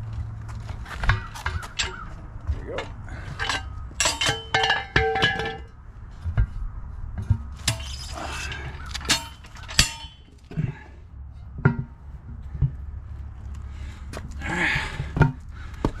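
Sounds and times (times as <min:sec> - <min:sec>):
scraping: 0:00.0 - 0:16.0
tire spoons knocking on wheel rim: 0:00.9 - 0:06.5, 0:11.5 - 0:12.8.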